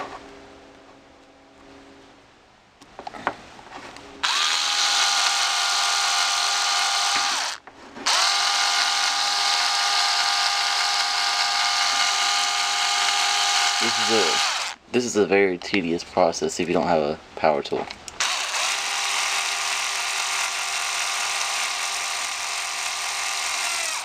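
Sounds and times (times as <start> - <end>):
power drill driving screw: 4.2 - 14.8, 18.2 - 24.0.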